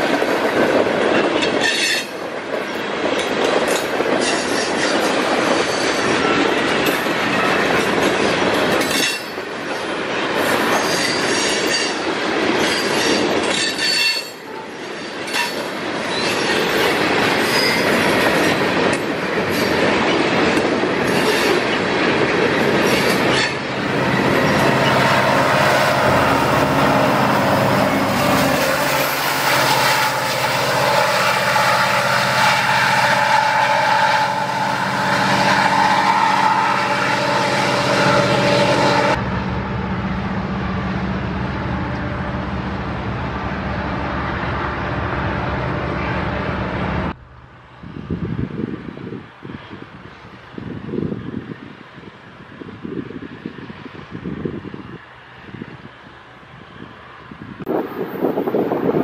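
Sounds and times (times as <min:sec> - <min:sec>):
freight train passing: 0:00.0 - 0:59.0
wheels squealing: 0:22.6 - 0:39.2.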